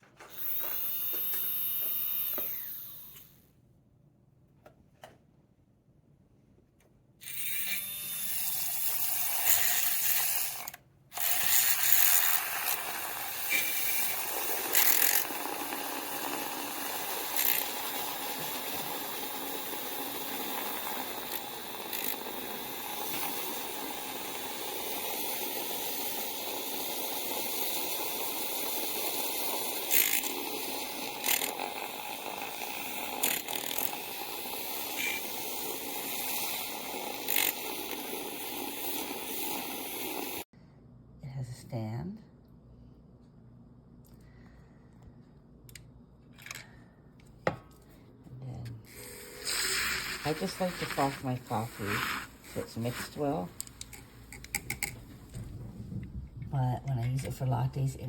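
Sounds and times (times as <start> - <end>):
milk frother motor buzz: 0.3 - 3.4, 7.2 - 40.5, 48.9 - 54.8
sharp clicks and taps: 53.6 - 55.1.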